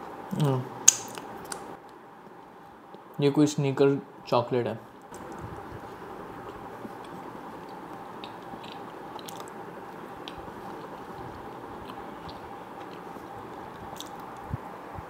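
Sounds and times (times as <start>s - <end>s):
electric fan whirring: 0.0s - 15.0s
chewing cake with small crunches: 5.3s - 14.5s.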